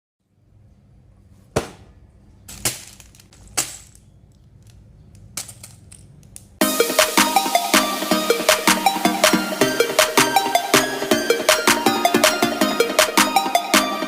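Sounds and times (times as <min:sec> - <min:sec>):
plastic bricks clicking: 0:02.5 - 0:06.6
electronic dance music: 0:06.6 - 0:14.0.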